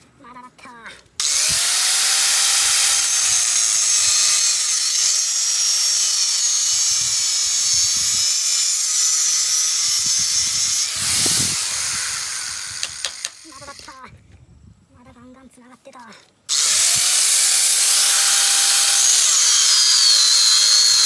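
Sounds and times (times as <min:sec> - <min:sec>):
power tool hissing: 0:01.2 - 0:14.0, 0:16.5 - 0:21.0.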